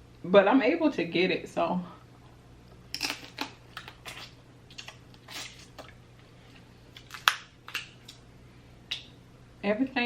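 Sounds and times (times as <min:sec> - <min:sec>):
wet eating clicks and squishes: 0:02.7 - 0:06.3, 0:06.9 - 0:08.2.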